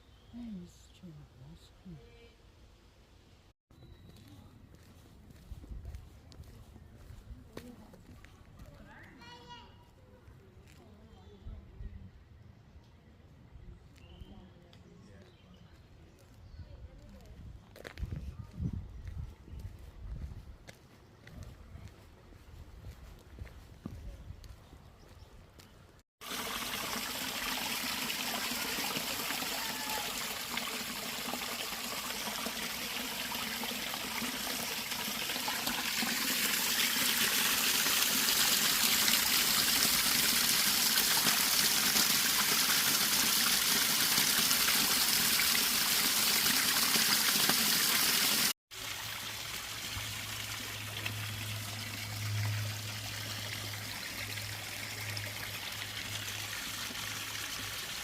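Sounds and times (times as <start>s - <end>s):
water running and trickling: 26.2s - 58.0s.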